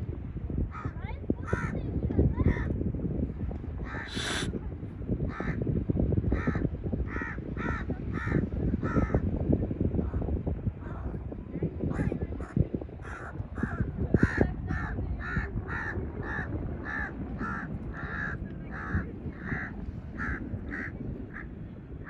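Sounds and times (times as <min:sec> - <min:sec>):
wind noise rumble: 0:00.0 - 0:22.0
bird calling: 0:03.9 - 0:04.5.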